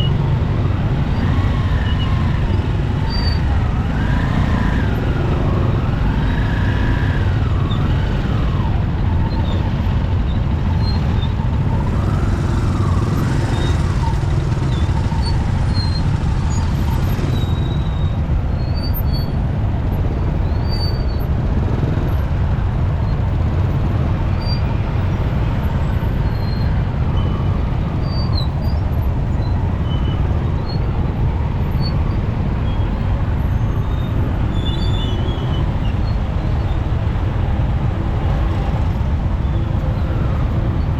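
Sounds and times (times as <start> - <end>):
city traffic: 0.0 - 40.9
motorcycle engine rumble: 0.0 - 40.9
siren wailing: 11.6 - 17.7.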